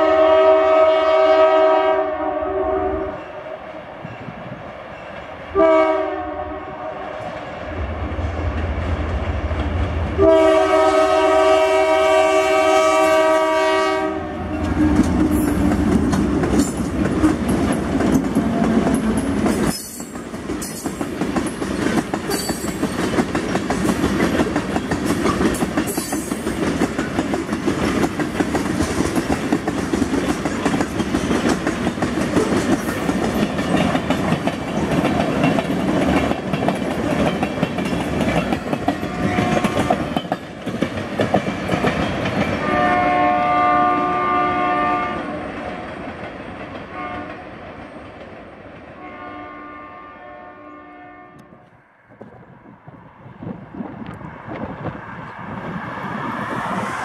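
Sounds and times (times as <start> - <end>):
locomotive horn: 0.0 - 3.6, 5.5 - 7.2, 10.2 - 15.5, 39.0 - 40.1, 42.6 - 45.6, 46.9 - 47.4, 49.0 - 51.7
wheels clacking over rail joints: 14.5 - 42.6.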